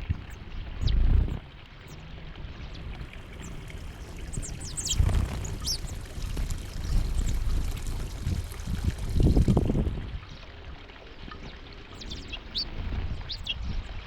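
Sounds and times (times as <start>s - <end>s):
small birds chirping: 2.6s - 9.8s
low uneven rumbling: 2.6s - 10.3s.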